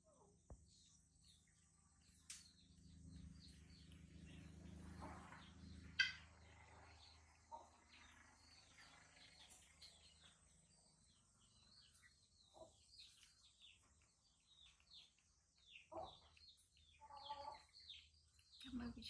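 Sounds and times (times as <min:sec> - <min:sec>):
faint chirping of small birds: 0:00.0 - 0:19.0.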